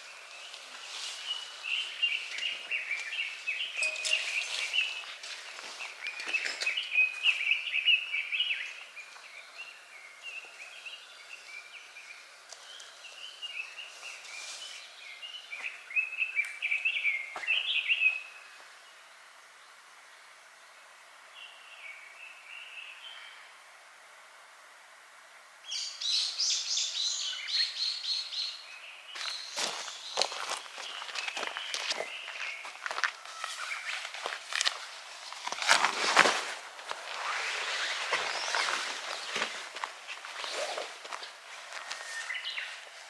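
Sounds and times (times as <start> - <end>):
songbird warbling: 1.2 - 8.8.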